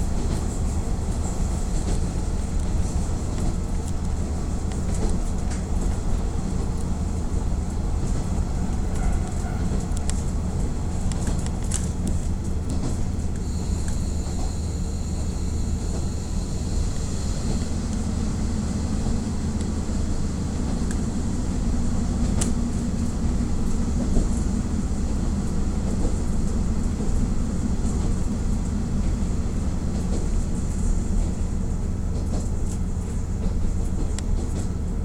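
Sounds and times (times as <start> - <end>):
wheel and rail noise: 0.0 - 35.0
faint high whistle: 13.4 - 17.2.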